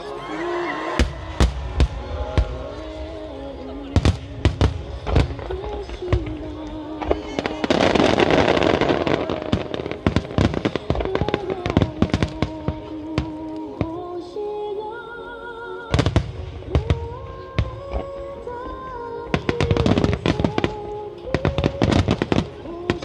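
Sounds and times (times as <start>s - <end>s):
music over loudspeakers: 0.0s - 23.0s
fireworks crackling: 0.8s - 14.3s, 15.9s - 23.0s
fireworks cracks and bangs: 0.9s - 13.9s, 19.4s - 23.0s.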